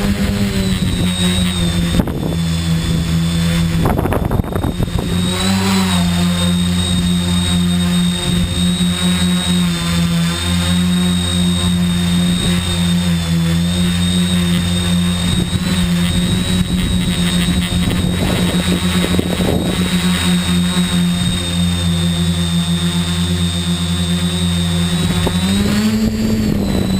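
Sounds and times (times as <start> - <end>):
wind buffeting microphone: 0.0 - 7.3, 14.3 - 20.1, 24.9 - 26.9
drone motors and propellers: 0.0 - 26.9.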